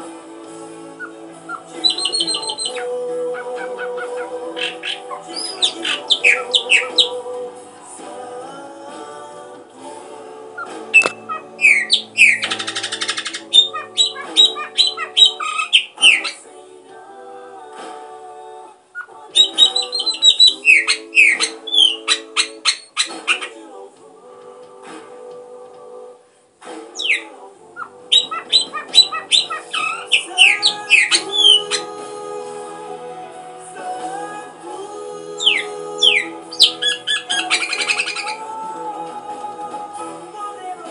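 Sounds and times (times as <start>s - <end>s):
background music: 0.0s - 40.9s
small bird chirping: 1.0s - 7.2s, 11.0s - 16.4s, 19.0s - 23.6s, 27.0s - 31.9s, 35.4s - 38.4s.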